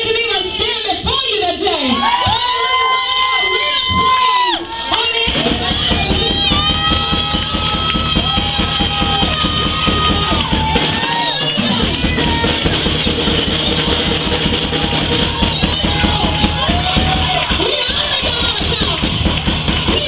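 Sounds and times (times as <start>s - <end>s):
drum kit beat: 3.4s - 20.0s
live band music: 5.0s - 20.0s.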